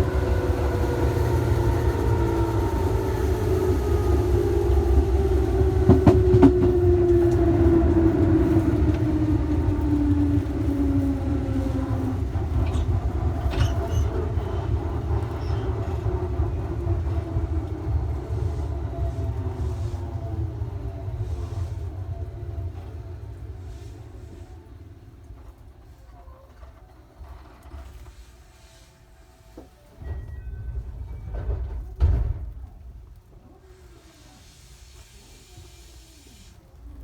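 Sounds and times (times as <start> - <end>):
electric train motor whine: 0.0 - 25.7
low train running rumble: 0.0 - 37.0.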